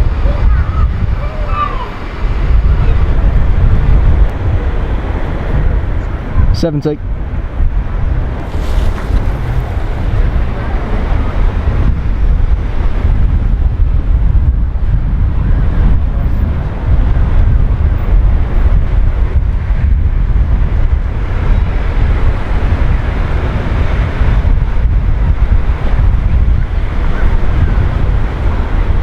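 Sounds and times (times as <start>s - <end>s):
waves rushing: 0.0s - 6.4s, 7.3s - 13.6s
wind buffeting microphone: 0.0s - 29.0s.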